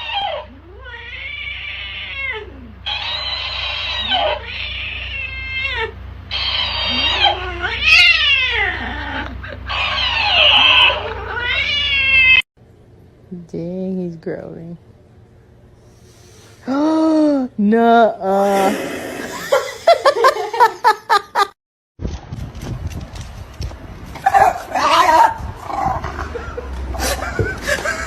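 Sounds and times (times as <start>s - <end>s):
cat yowling: 0.0s - 12.4s.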